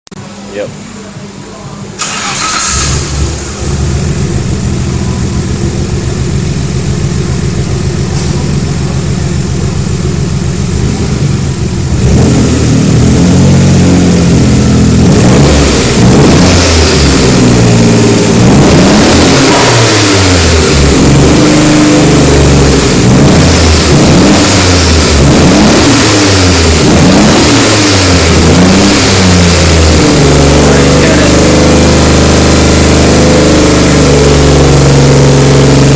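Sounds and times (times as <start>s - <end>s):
car engine idling and revving: 0.2s - 35.9s.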